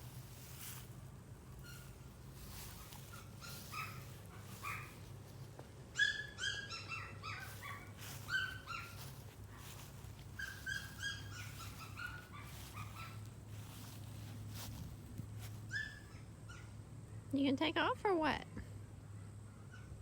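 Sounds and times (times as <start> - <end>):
puppy whining and yipping: 1.6 - 5.1, 6.0 - 13.3, 15.7 - 16.7.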